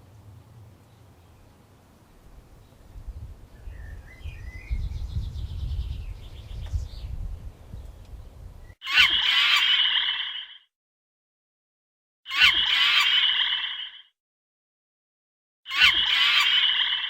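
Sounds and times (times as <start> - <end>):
bird chirps: 2.6 - 7.2, 12.3 - 13.9, 15.7 - 17.0
frogs croaking: 8.8 - 10.6, 12.3 - 14.1, 15.7 - 17.0.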